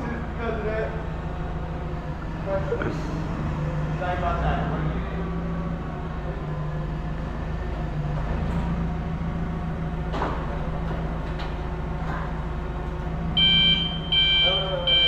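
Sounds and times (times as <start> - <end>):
engine humming: 0.0 - 15.0
backup warning beeper: 13.4 - 15.0.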